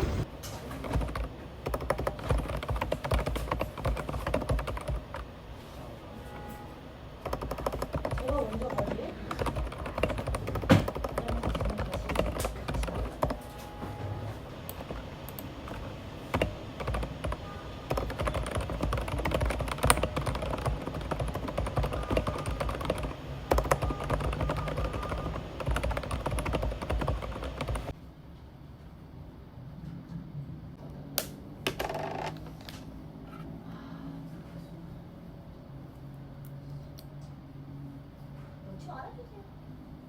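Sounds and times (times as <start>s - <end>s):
steady background noise: 0.0s - 40.0s
typing on computer keyboard: 0.8s - 5.2s, 7.2s - 13.4s, 14.7s - 28.0s.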